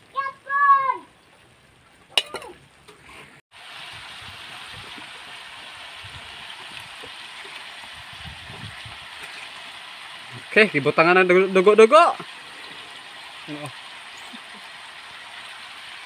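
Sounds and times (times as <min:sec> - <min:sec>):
meat sizzling in a wok: 0:03.5 - 0:16.0.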